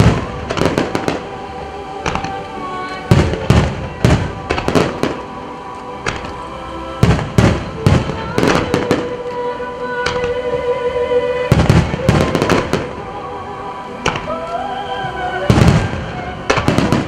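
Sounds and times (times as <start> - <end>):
firework bangs and crackle: 0.0 - 6.4, 7.0 - 9.4, 11.5 - 13.1, 14.0 - 14.5, 15.4 - 17.0
music playing: 0.0 - 17.0.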